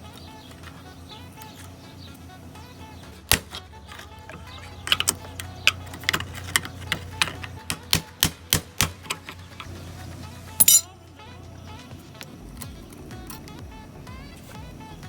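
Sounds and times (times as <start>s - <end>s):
low steady hum: 0.0s - 15.0s
tools tapping on metal: 3.3s - 9.7s, 10.6s - 11.0s.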